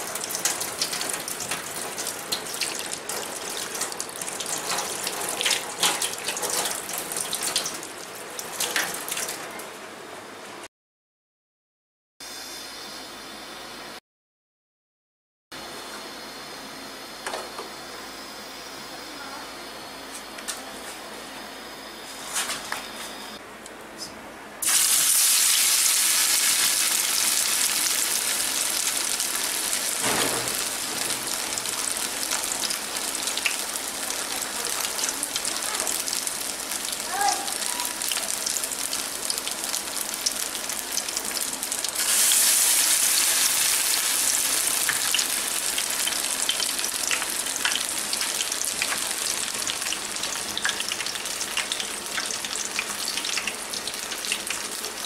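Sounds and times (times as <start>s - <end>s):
meat sizzling in hot oil: 0.0s - 9.4s, 24.6s - 55.0s.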